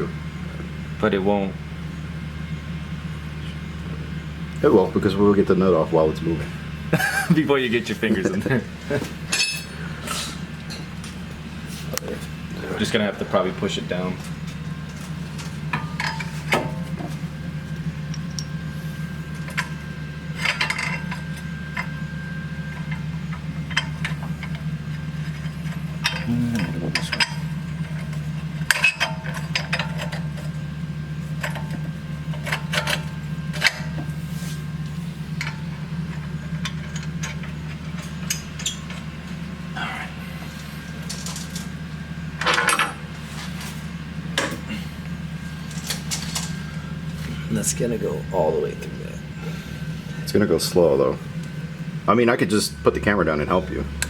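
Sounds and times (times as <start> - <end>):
steady low hum: 0.0 - 54.0
metal tools clinking: 9.3 - 10.9
metallic clatter: 14.9 - 17.1.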